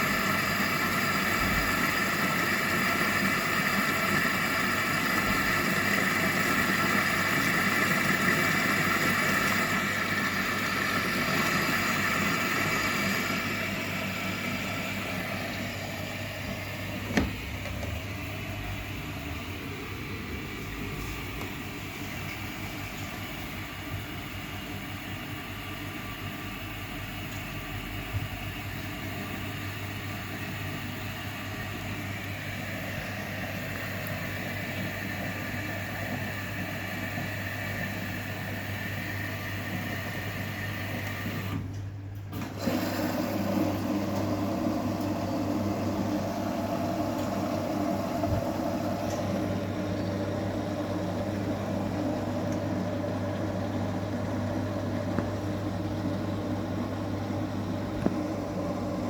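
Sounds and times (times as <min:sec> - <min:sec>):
washing machine running: 0:00.0 - 0:59.0.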